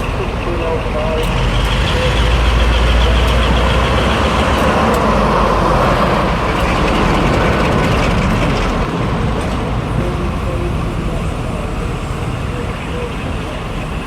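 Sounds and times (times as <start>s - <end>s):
diesel locomotive engine running: 0.0s - 14.0s.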